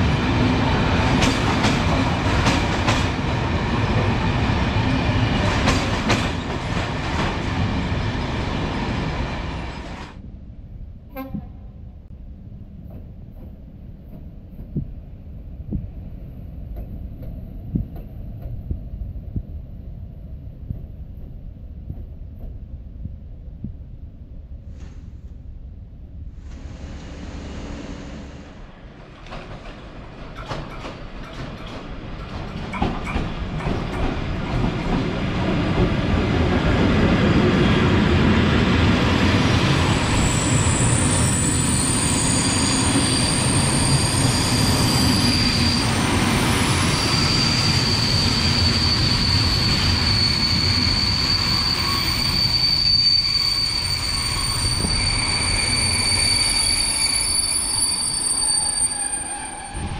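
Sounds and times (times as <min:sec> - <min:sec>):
passenger train rumbling past: 0:00.0 - 0:59.9
wheels clicking over rail joints: 0:29.0 - 0:35.0
high wheel squeal: 0:39.9 - 0:59.9.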